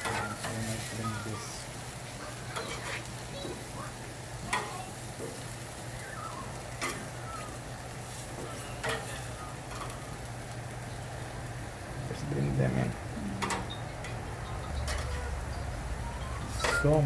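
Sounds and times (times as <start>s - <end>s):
chicken sizzling on a grill: 0.0s - 17.0s
metallic clicks on grill grate: 4.4s - 4.8s, 8.1s - 11.5s, 13.4s - 15.2s.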